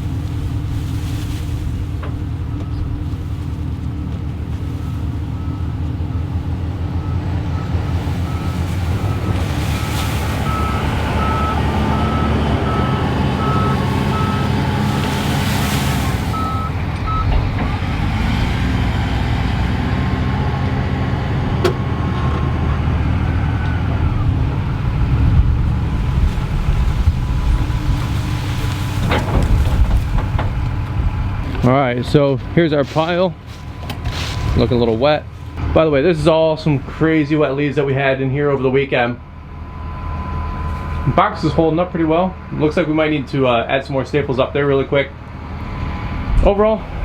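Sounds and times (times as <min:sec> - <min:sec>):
truck engine running: 0:00.0 - 0:47.0
backup alarm beeping: 0:02.2 - 0:03.0, 0:04.0 - 0:15.0, 0:15.9 - 0:17.4.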